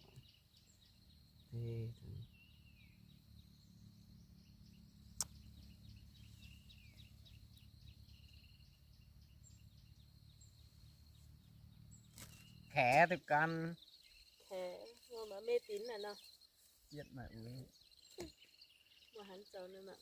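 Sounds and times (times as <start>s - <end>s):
faint chirps: 0.0s - 20.0s
sharp click: 5.2s - 5.4s.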